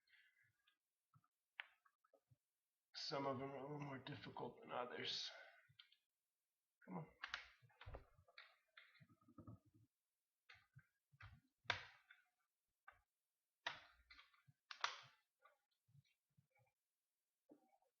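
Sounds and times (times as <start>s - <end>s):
plastic clips snapping: 13.6s - 15.2s.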